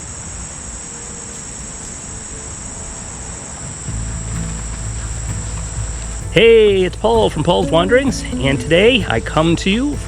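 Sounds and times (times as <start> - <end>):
insect chorus trilling: 0.0 - 10.0
low rumble: 3.7 - 10.0.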